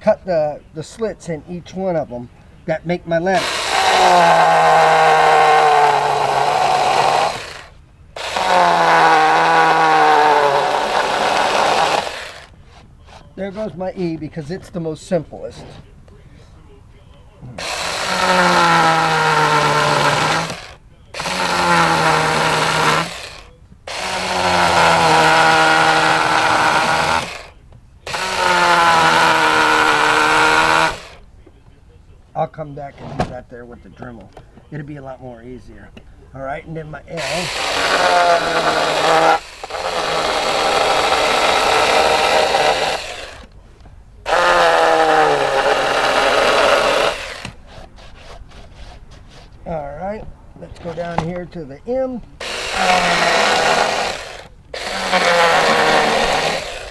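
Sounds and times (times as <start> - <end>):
electric chainsaw cutting wood: 3.2 - 13.8, 17.5 - 31.2, 37.1 - 43.5, 44.2 - 49.0, 52.4 - 56.9.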